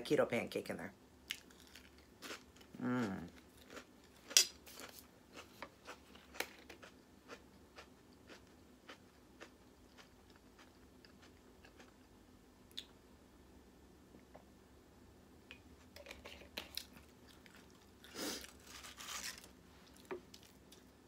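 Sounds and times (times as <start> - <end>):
crunchy chips chewing: 1.3 - 12.1.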